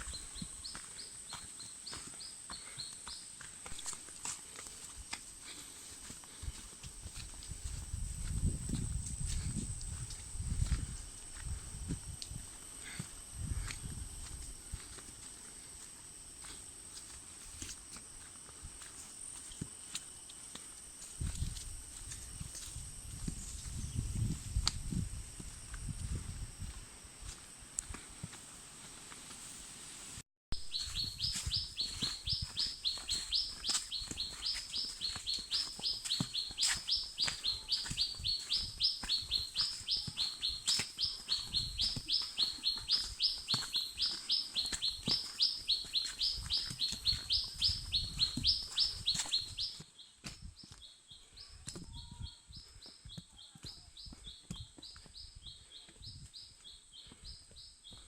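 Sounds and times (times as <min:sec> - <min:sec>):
high rising chirp: 0:30.6 - 0:49.8.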